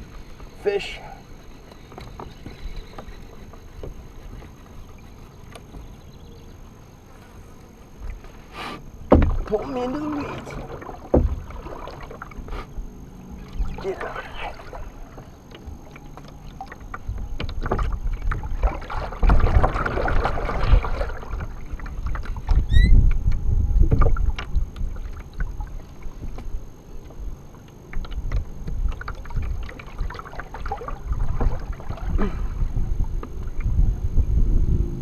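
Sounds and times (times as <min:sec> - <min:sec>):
knocks against a kayak: 0:09.1 - 0:09.6, 0:11.1 - 0:11.5
water splashing: 0:09.1 - 0:12.7, 0:13.3 - 0:22.7, 0:28.2 - 0:33.7
wind rumble on microphone: 0:14.8 - 0:35.0.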